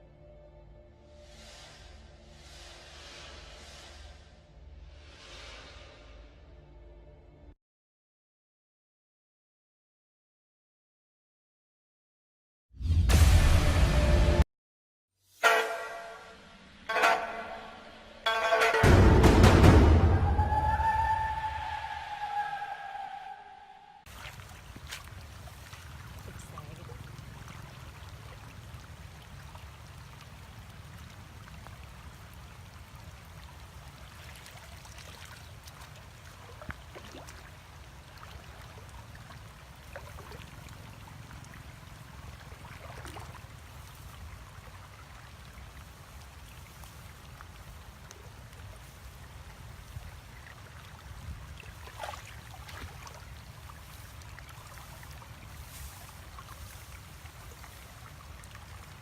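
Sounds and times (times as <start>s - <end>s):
water trickling and splashing: 24.1s - 59.0s.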